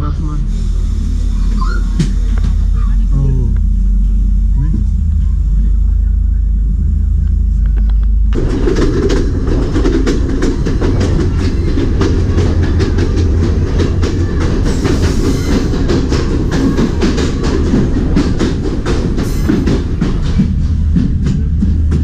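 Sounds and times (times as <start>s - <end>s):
low train rumble: 0.0s - 22.0s
wheels clicking over rail joints: 7.3s - 22.0s.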